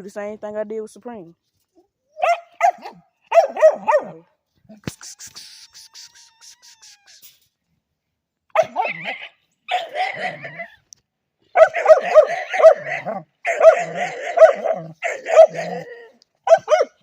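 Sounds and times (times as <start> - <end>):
dog barking: 2.2 - 4.2, 8.5 - 10.7, 11.5 - 17.0.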